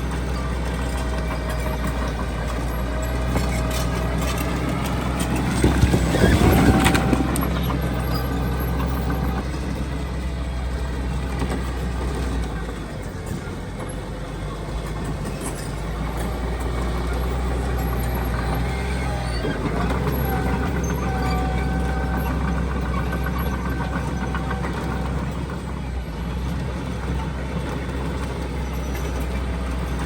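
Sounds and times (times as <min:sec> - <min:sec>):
diesel machinery engine drone: 0:00.0 - 0:30.0.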